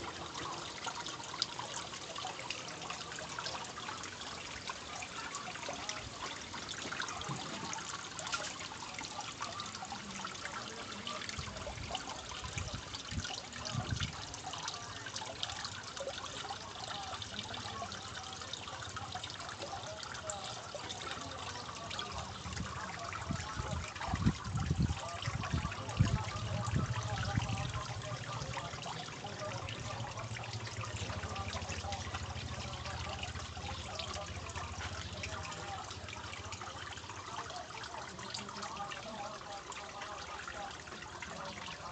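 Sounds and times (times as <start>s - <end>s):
water trickling: 0.0s - 41.9s.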